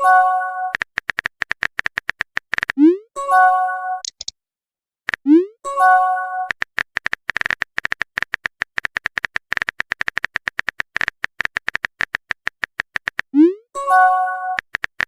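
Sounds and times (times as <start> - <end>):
phone keyboard typing clicks: 0.7 - 2.8, 4.0 - 4.3, 6.5 - 13.3, 14.6 - 15.0.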